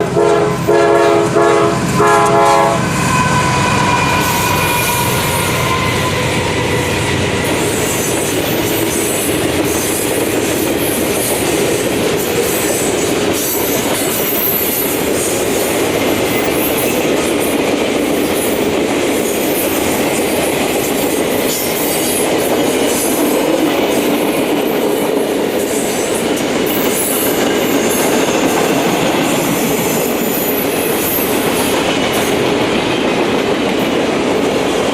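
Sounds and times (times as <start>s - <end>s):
train horn blasts: 0.0s - 7.0s
wheel squeal: 2.9s - 9.1s.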